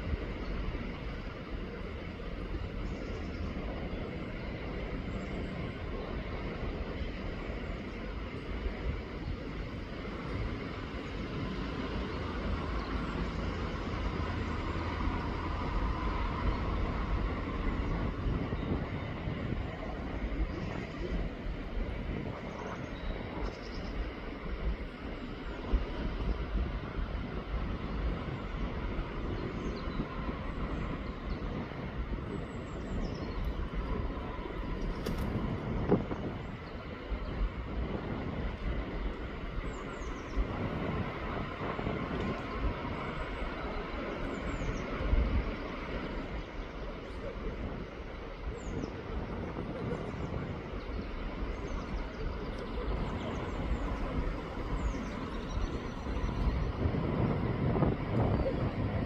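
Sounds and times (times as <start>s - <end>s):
wind rumble on microphone: 0.0s - 59.0s
brief click: 35.0s - 35.4s.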